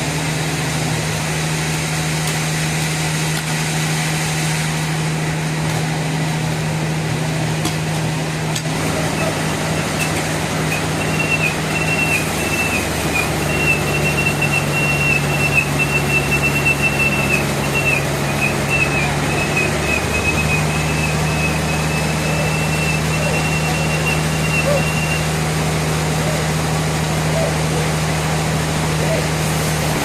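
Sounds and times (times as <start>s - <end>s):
sawmill machinery hum: 0.0s - 30.0s
high wavering whine: 8.8s - 26.6s.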